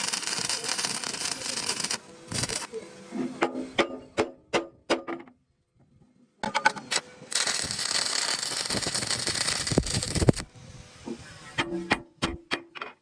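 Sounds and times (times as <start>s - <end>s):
harsh hissing crackle of metalworking: 0.0s - 3.4s, 6.9s - 11.9s.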